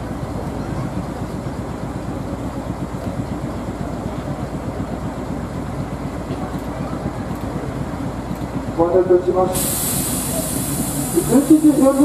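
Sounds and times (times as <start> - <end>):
low rumble of standing trains: 0.0 - 12.0.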